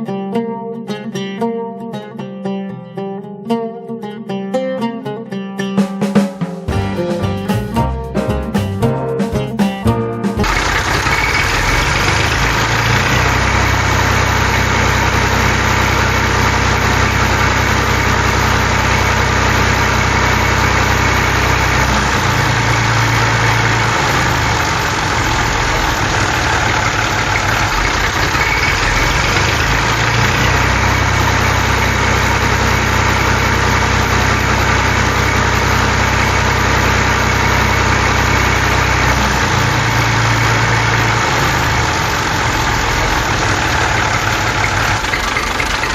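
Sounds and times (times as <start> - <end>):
tractor engine idling: 10.4 - 45.9.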